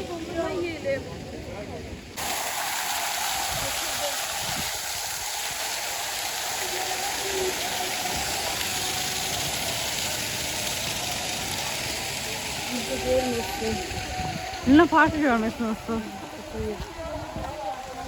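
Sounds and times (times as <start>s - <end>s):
faint voices: 6.3s - 18.0s.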